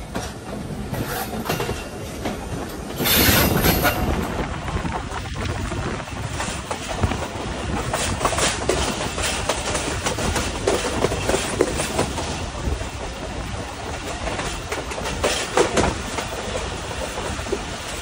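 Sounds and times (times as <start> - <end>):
train rumble and hiss: 0.0 - 18.0
wheels clattering over rails: 0.0 - 18.0.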